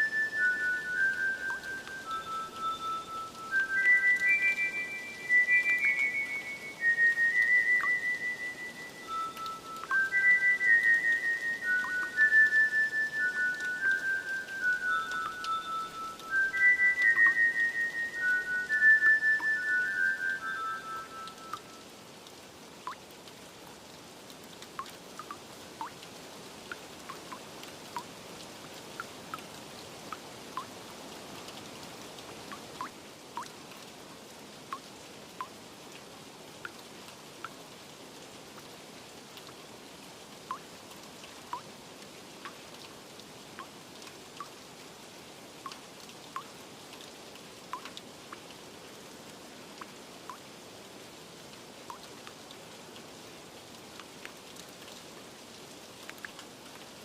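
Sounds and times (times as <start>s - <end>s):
water drops plinking: 0.0s - 21.9s
steady rain hiss: 0.0s - 57.0s.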